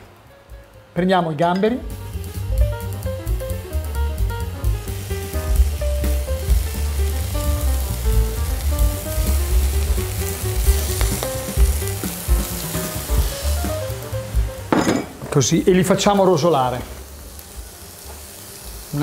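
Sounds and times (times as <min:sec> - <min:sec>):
prawns sizzling in a frying pan: 0:00.2 - 0:19.0
background music with bass beat: 0:02.0 - 0:14.7.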